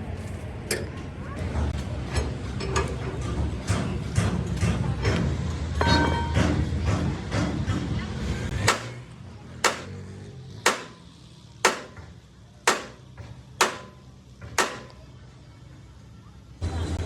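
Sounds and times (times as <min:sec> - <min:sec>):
hammer striking metal: 0:05.8 - 0:06.7, 0:08.6 - 0:09.0, 0:09.6 - 0:10.0, 0:10.6 - 0:15.0.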